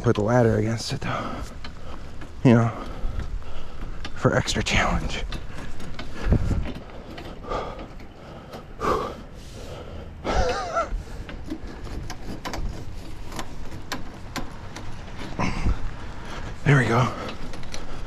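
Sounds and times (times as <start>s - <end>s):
man breathing hard: 1.0s - 4.2s, 5.5s - 12.0s, 15.3s - 18.0s
metal conduit clicking and knocking: 10.3s - 15.8s
man grunting with effort: 15.4s - 15.8s.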